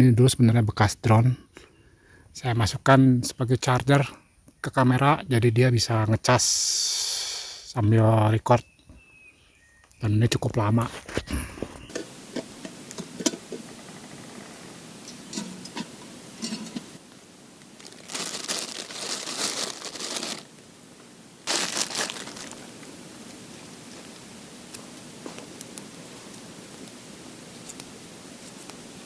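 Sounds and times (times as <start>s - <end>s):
crinkling rustle: 10.5s - 11.9s, 17.6s - 20.6s, 21.5s - 25.6s.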